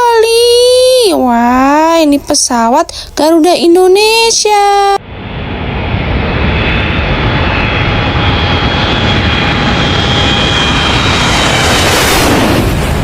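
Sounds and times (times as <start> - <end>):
jet engines rushing and whining: 4.2 - 13.0.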